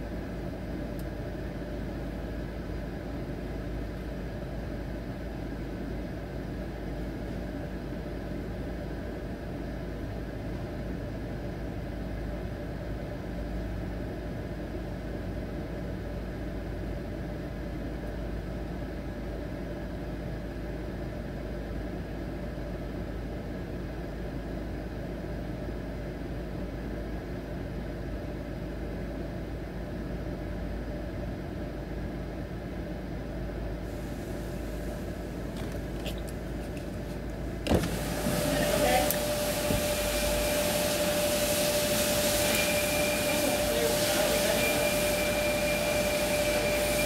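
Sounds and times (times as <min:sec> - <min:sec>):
car engine idling: 0:00.0 - 0:14.4, 0:27.8 - 0:47.0.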